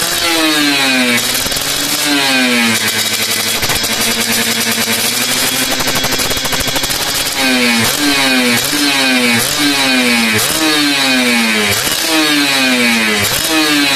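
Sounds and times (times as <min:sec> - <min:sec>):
motorcycle engine revving: 0:00.0 - 0:13.9.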